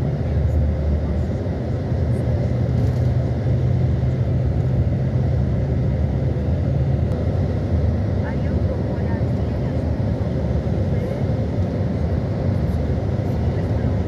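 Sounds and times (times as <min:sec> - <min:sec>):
motor vehicle rumbling: 0:00.0 - 0:08.2.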